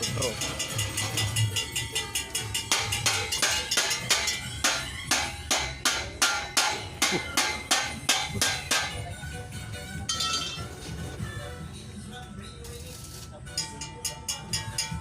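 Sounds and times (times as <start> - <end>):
hammer striking metal: 0.0 - 9.1, 10.1 - 10.7, 13.5 - 15.0.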